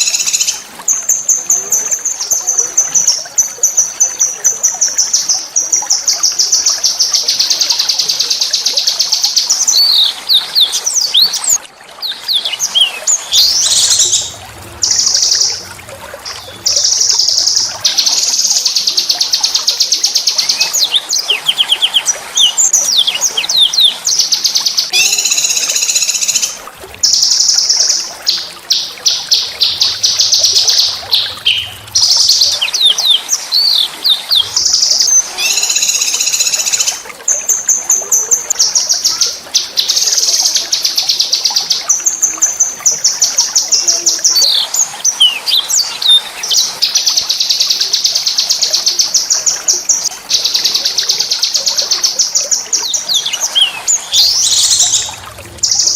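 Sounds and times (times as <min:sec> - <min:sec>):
songbird trilling: 0:24.5 - 0:27.8, 0:28.7 - 0:37.0.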